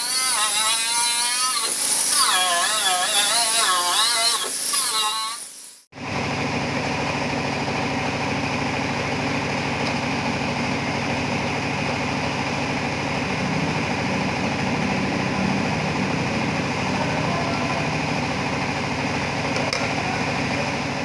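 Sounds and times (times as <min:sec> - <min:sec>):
machine motor running: 0:06.2 - 0:21.0.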